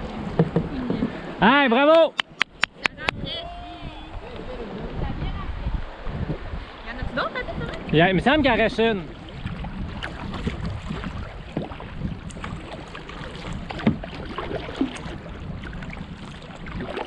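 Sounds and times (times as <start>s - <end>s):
paddle splashes: 0.0s - 1.4s, 6.6s - 17.0s
water washing around hull: 0.0s - 1.5s, 4.1s - 17.0s
wind rumbling on microphone: 2.5s - 17.0s.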